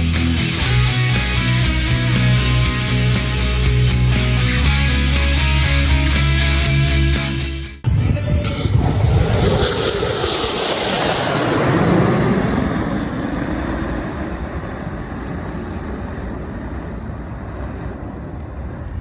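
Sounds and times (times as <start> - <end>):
jet aircraft passing by: 7.8 - 19.0.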